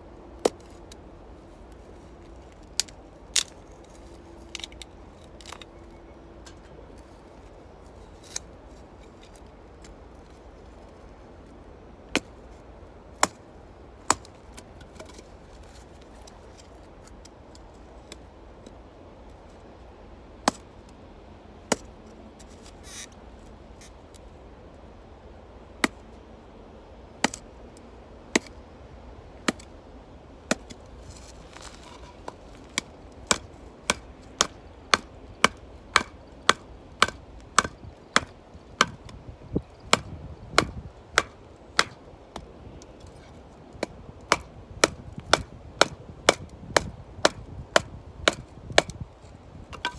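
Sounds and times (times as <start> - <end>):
firewood being chopped: 2.7 - 3.6, 14.1 - 15.3, 28.4 - 28.6, 29.5 - 29.7, 30.5 - 49.0, 49.7 - 49.9.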